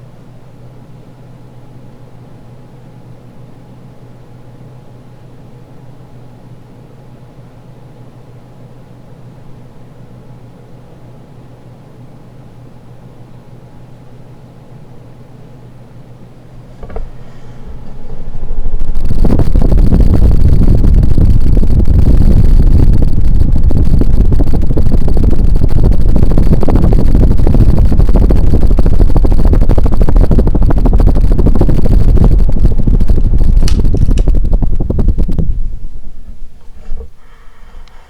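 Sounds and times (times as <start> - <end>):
fan wind buffeting microphone: 14.8 - 38.0.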